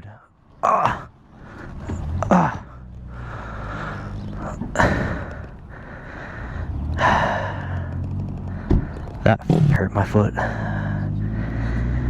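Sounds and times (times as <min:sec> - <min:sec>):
man groaning: 0:00.6 - 0:01.1, 0:02.2 - 0:02.8.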